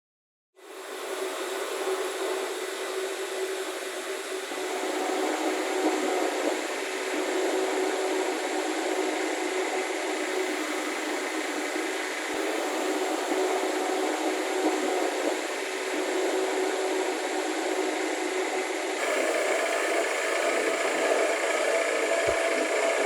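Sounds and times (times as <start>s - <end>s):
power tool whirring: 19.0s - 23.0s.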